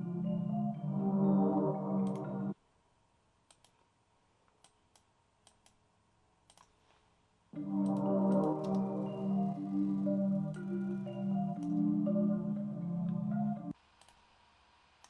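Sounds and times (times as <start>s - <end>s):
melody loop: 0.0s - 2.5s, 7.6s - 13.8s
mouse and keyboard clicks: 3.5s - 3.9s.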